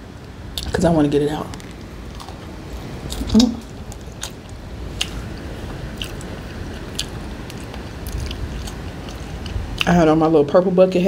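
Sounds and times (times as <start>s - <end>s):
biting and chewing fish: 1.6s - 9.9s.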